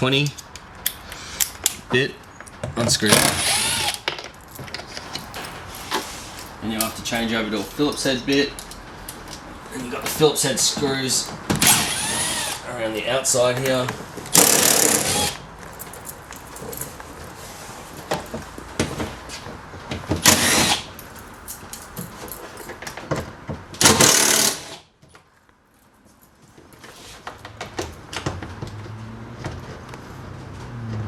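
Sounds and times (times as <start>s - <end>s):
cordless drill driving screws: 3.1s - 4.0s, 11.6s - 12.6s, 14.3s - 15.4s, 20.2s - 20.9s, 23.8s - 24.8s.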